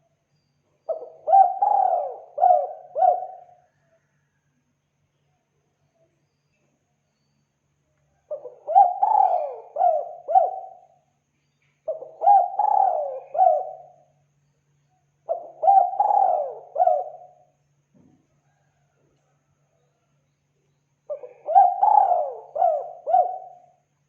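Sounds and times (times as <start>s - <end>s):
dove cooing: 0.9s - 3.8s, 8.2s - 11.0s, 11.9s - 14.1s, 15.3s - 17.5s, 21.1s - 23.8s.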